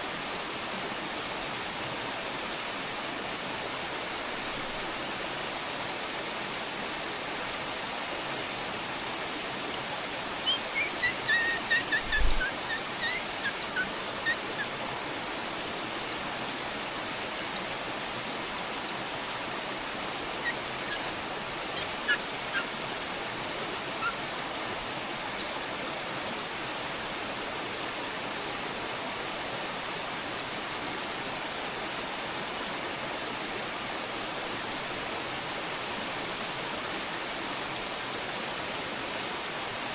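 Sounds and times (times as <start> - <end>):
nestlings chirping: 10.4 - 19.5, 20.2 - 25.5.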